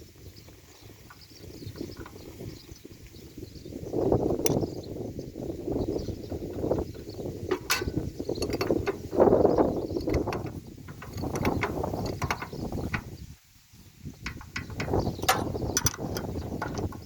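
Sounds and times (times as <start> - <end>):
spanner clicking and ratcheting: 7.5 - 13.2, 14.2 - 17.0.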